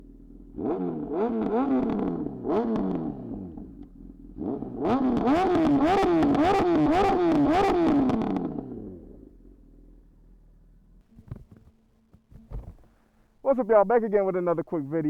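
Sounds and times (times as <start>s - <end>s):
motorcycle engine revving: 0.0s - 11.7s.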